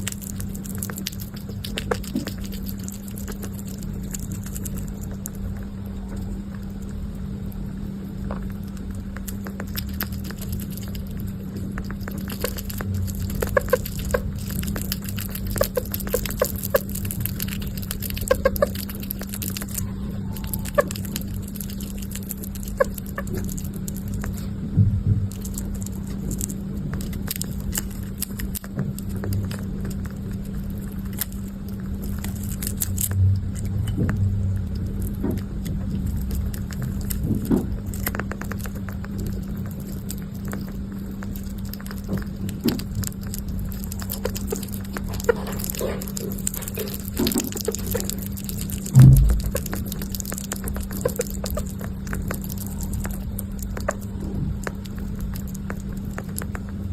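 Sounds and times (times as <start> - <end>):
steady low hum: 0.0 - 56.9
short squeaks: 19.6 - 21.4.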